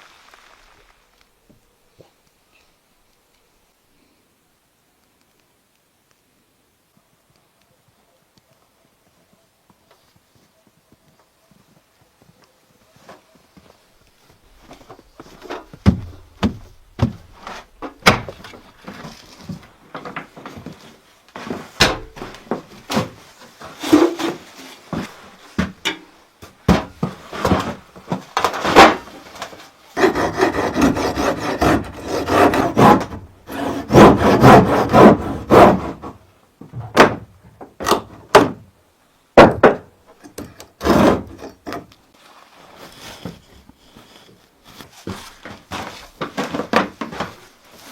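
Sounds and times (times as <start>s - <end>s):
knocks and clatter of timber: 14.7s - 38.7s, 39.4s - 41.9s, 45.0s - 47.5s
rasping rubbing strokes on wood: 30.0s - 36.1s.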